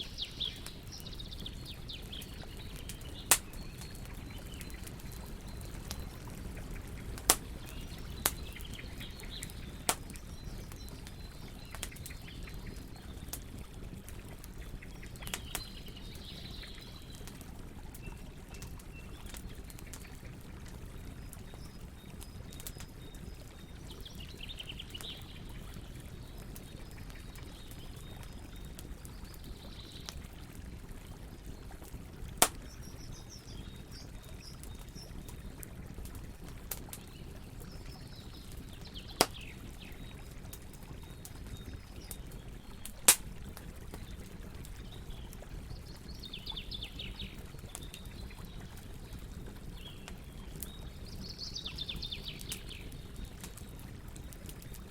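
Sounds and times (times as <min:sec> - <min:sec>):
birds chirping: 0:00.0 - 0:13.7
campfire crackling: 0:00.0 - 0:54.9
loud sharp pops of fire: 0:03.0 - 0:04.0, 0:06.9 - 0:10.8, 0:32.4 - 0:32.8, 0:39.1 - 0:39.5, 0:42.8 - 0:43.4.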